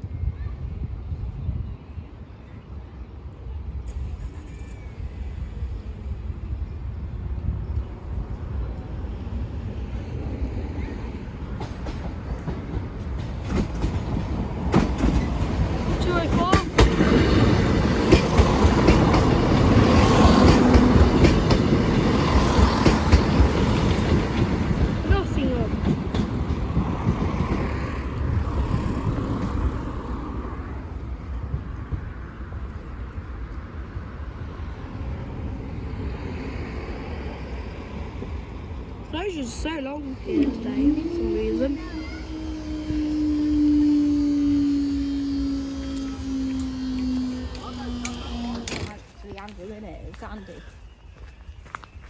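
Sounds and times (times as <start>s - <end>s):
wind noise on microphone: 0.0s - 39.0s
train rumbling past: 0.0s - 52.0s
wheels clicking over rail joints: 11.1s - 32.7s, 39.2s - 50.3s.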